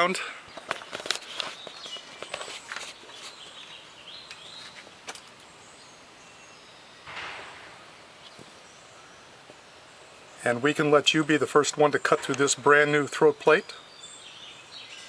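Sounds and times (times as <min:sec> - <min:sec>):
bird chirp: 0:00.0 - 0:15.0
brief rustle: 0:00.6 - 0:03.4.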